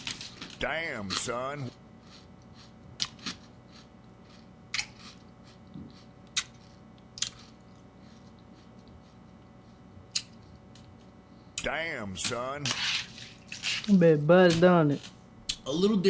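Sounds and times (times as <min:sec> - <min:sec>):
quiet chewing: 0:00.4 - 0:11.1.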